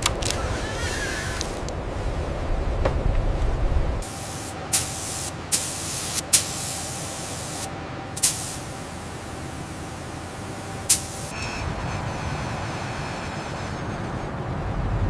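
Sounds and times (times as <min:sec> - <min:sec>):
low rumble: 0:01.7 - 0:04.0
hissing spray from nozzle: 0:04.0 - 0:11.4.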